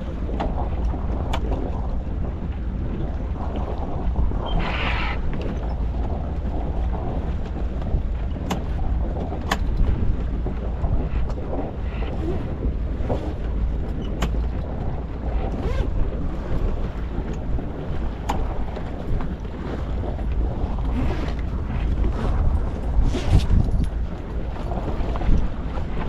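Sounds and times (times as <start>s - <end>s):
rush of wind and water: 0.0s - 26.0s
wind buffeting microphone: 0.0s - 26.0s
clicks and knocks from boat fittings: 8.3s - 8.8s, 9.4s - 9.9s, 13.9s - 14.7s, 18.2s - 18.9s.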